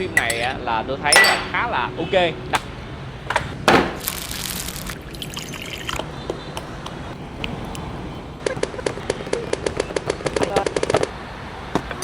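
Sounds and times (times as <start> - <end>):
liquid pouring into a dish: 5.0 - 6.0.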